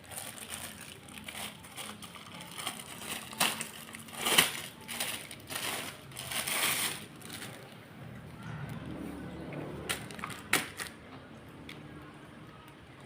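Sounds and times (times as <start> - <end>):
packaging crinkling and crumpling: 0.0 - 7.8, 9.9 - 11.0.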